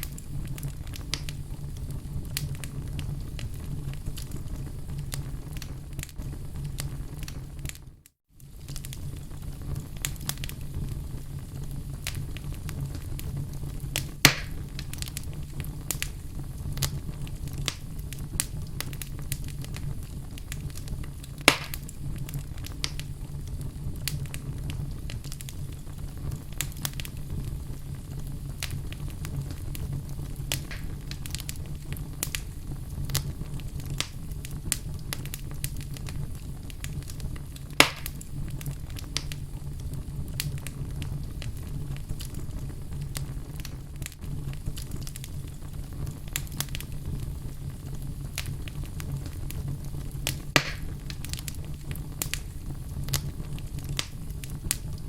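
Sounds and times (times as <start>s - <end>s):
loud fire pops: 0.0s - 55.0s
low rumble of flames: 0.0s - 55.0s
wood fire crackling: 0.0s - 55.0s.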